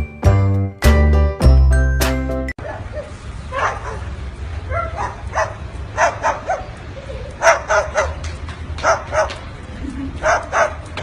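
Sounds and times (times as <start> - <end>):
dog yapping barks: 3.0 - 4.1, 4.7 - 6.8, 7.4 - 8.2, 8.8 - 9.4, 10.2 - 10.8.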